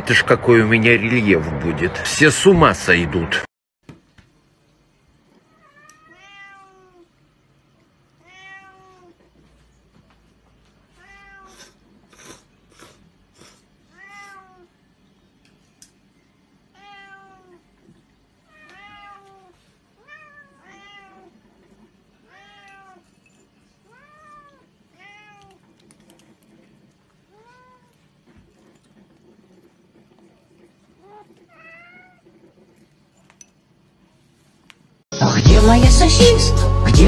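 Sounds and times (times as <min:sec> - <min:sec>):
cats meowing: 0:05.4 - 0:07.2, 0:08.2 - 0:09.4, 0:10.9 - 0:12.0, 0:13.8 - 0:14.8, 0:16.7 - 0:17.8, 0:18.4 - 0:23.1, 0:23.7 - 0:25.8, 0:27.2 - 0:28.1, 0:30.9 - 0:32.4.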